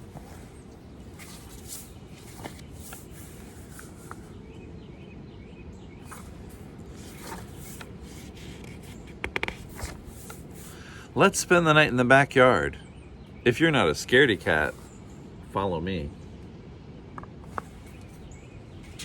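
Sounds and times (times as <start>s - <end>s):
faint rustles and clicks: 0.0s - 4.5s, 6.0s - 10.9s, 17.2s - 19.0s
low background noise: 0.0s - 19.0s.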